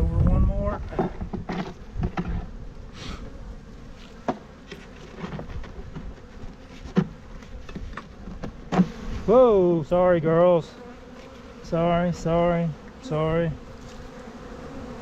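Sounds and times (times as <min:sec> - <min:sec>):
honeybees buzzing: 0:00.0 - 0:15.0
wooden hive frames knocking: 0:00.8 - 0:02.5, 0:04.2 - 0:09.0.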